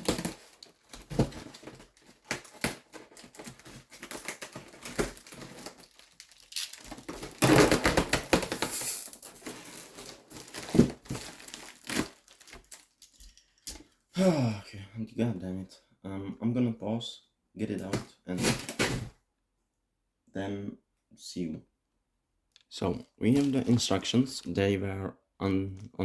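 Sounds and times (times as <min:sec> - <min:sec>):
packaging rustling and crinkling: 0:00.0 - 0:14.0, 0:23.2 - 0:24.5.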